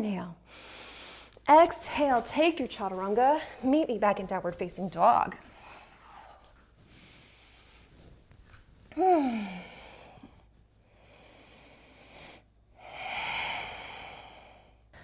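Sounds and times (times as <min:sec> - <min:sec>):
woman breathing: 0:00.4 - 0:02.3, 0:05.4 - 0:08.1, 0:08.9 - 0:15.0
woman sighing: 0:08.9 - 0:10.2.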